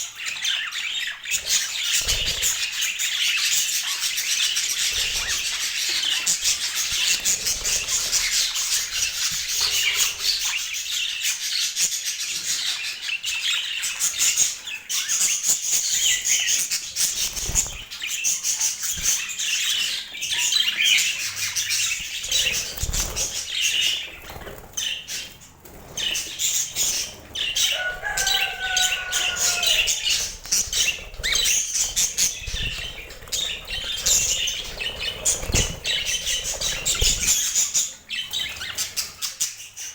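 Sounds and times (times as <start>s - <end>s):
budgerigars chattering: 0.0s - 39.9s
gliding bird call: 27.4s - 31.6s.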